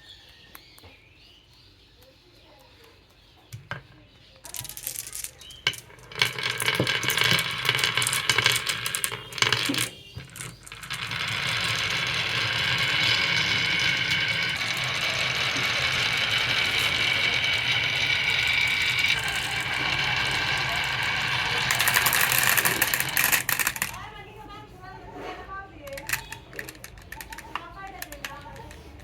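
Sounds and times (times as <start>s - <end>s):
marbles rolling down wooden run: 4.4s - 24.2s, 25.8s - 29.0s.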